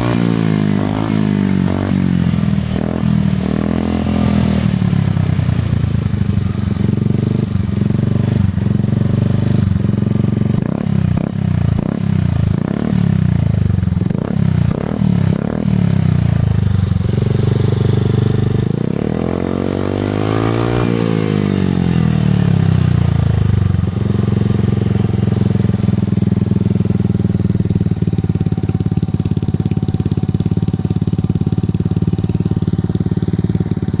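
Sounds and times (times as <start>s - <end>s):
scooter engine revving: 0.0s - 34.0s.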